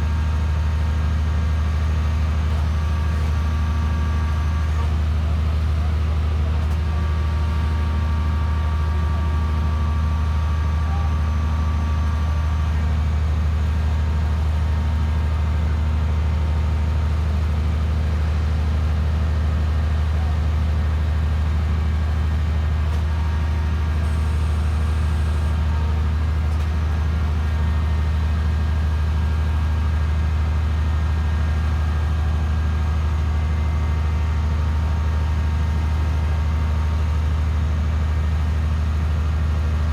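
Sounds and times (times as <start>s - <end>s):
machine engine low drone: 0.0s - 39.9s.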